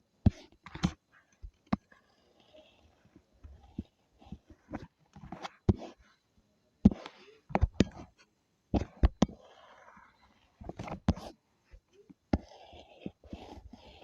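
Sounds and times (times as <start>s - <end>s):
drawing tool scratching: 0.2s - 6.2s, 8.8s - 14.0s
drawing tool tapping and clicking: 8.8s - 9.5s, 10.6s - 14.0s.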